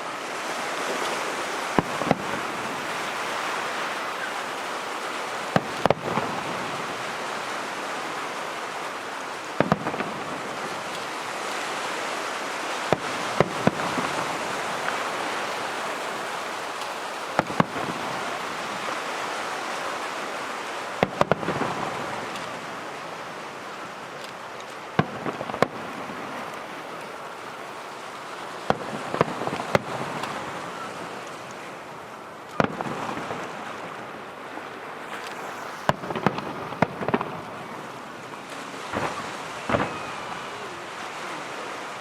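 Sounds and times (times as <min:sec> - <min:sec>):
steady hiss: 0:00.0 - 0:42.0
fireworks shells bursting: 0:01.7 - 0:08.8, 0:12.8 - 0:19.2, 0:35.2 - 0:40.6.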